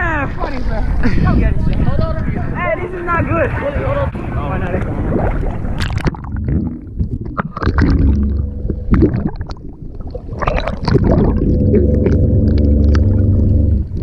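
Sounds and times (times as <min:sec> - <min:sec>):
water gurgling and sloshing: 0:03.0 - 0:14.0
water splashes: 0:03.2 - 0:14.0.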